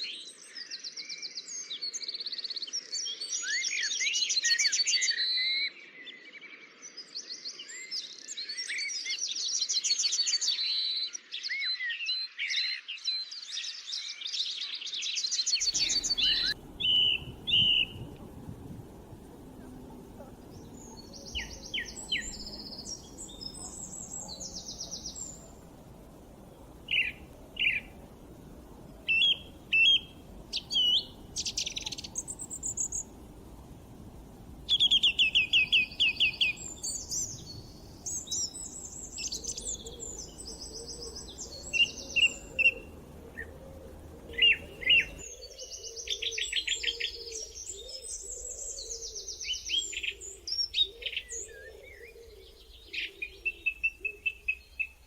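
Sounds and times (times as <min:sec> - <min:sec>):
songbirds singing and trilling: 0:00.0 - 0:55.0
faint background hiss: 0:15.6 - 0:55.0.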